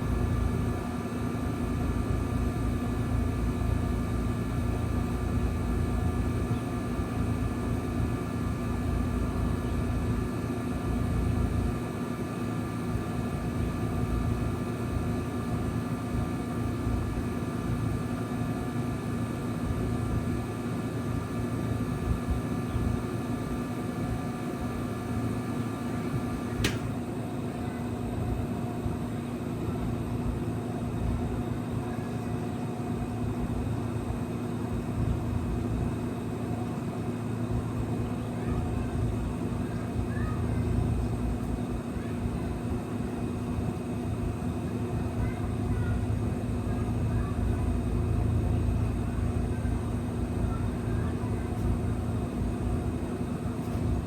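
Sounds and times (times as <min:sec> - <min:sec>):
heat pump hum: 0:00.0 - 0:54.0
heat pump whine: 0:00.0 - 0:54.0
sharp click: 0:26.6 - 0:27.0.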